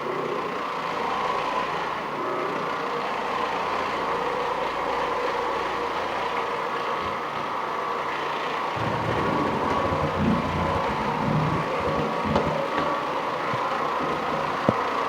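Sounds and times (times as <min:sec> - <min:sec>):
carpet cleaning machine running: 0:00.0 - 0:15.0.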